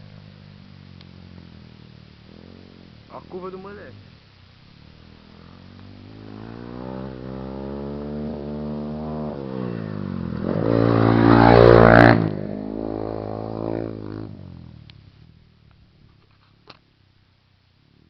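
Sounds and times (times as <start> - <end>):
dirt bike engine revving: 4.8 - 14.8.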